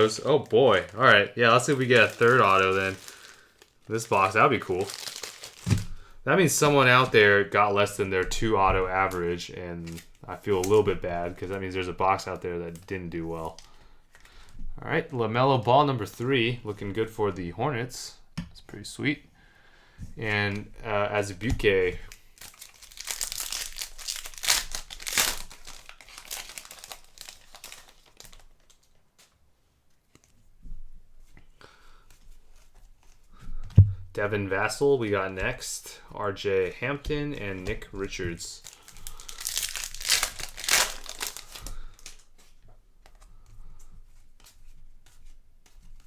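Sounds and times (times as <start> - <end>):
plastic wrapping crinkling: 0.0 - 14.8, 21.2 - 29.4, 36.6 - 43.3
cards being handled and slid: 40.3 - 46.0.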